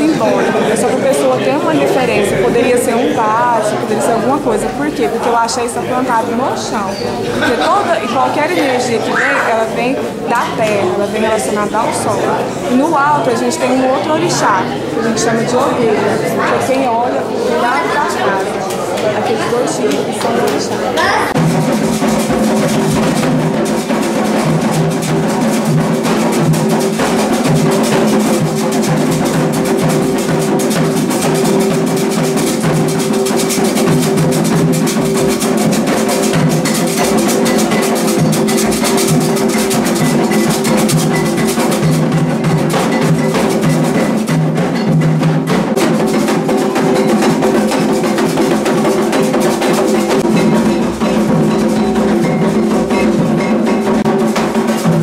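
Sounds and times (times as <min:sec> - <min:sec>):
hand drums beating: 0:00.0 - 0:55.0.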